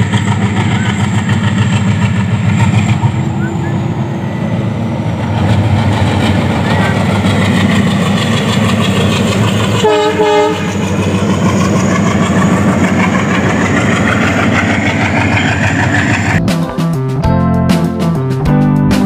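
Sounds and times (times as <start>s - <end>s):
train rumbling past: 0.0s - 17.2s
train horn blasts: 9.8s - 10.8s.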